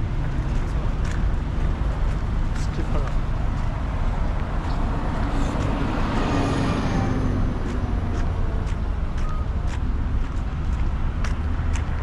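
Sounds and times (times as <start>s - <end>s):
street traffic rumble: 0.0s - 12.0s
vehicle passing close by: 0.0s - 12.0s.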